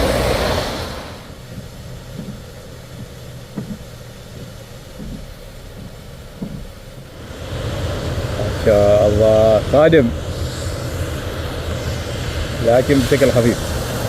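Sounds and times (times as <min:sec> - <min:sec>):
loud rushing noise: 0:00.0 - 0:01.5, 0:07.1 - 0:14.0
vehicle engine idling: 0:00.0 - 0:14.0.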